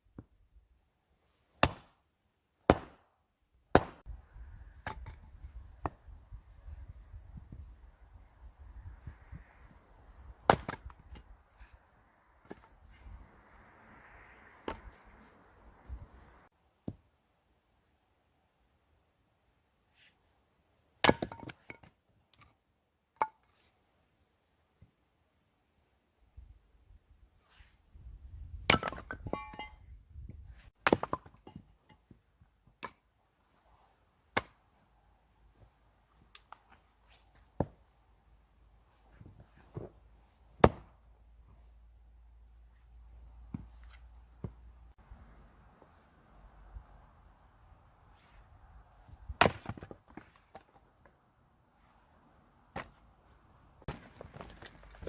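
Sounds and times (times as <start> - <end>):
axe chopping firewood: 1.6 - 2.0, 2.6 - 3.1, 3.7 - 4.1, 4.7 - 6.2, 10.3 - 11.4, 12.4 - 13.1, 21.0 - 22.5, 28.4 - 29.8, 30.7 - 33.1, 34.3 - 34.6, 40.6 - 41.0, 49.2 - 50.8, 52.7 - 53.0, 53.8 - 55.0.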